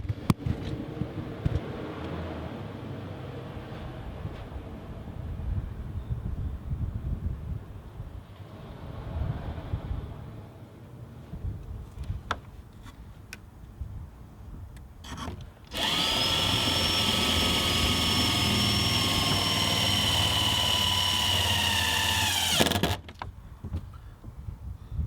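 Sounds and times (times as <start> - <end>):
power drill running: 15.0 - 23.0.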